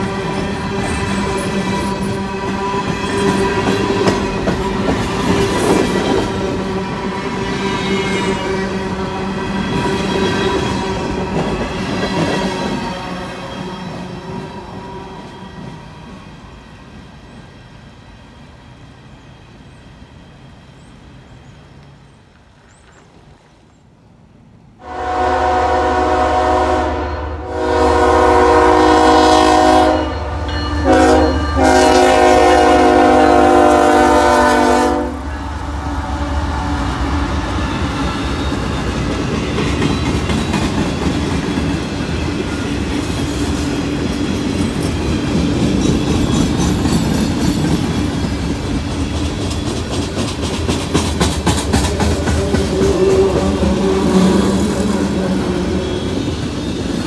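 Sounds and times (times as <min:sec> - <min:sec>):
train wheels clacking over rail joints: 0:00.0 - 0:06.6, 0:37.8 - 0:55.3
locomotive horn blasts: 0:24.8 - 0:35.4.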